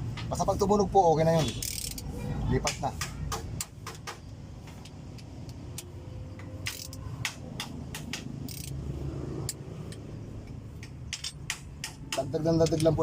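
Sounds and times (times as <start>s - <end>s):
torque wrench clicking: 1.5s - 2.1s, 6.6s - 8.8s.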